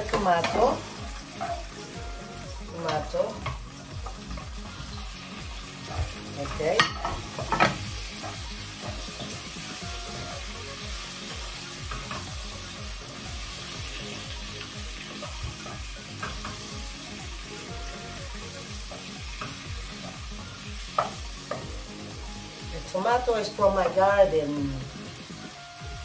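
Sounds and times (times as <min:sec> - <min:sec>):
vegetables sizzling in oil: 0:00.0 - 0:26.0
wooden spatula scraping and tapping pan: 0:05.8 - 0:09.6, 0:15.2 - 0:16.7, 0:20.9 - 0:21.7.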